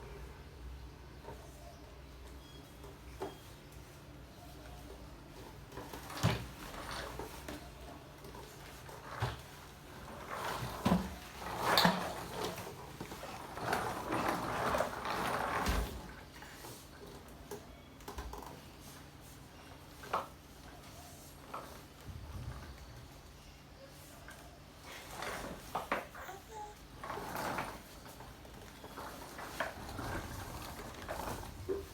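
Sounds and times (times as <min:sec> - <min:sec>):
baby walker rolling and clattering: 0:02.2 - 0:19.1, 0:19.7 - 0:23.4, 0:24.3 - 0:31.9.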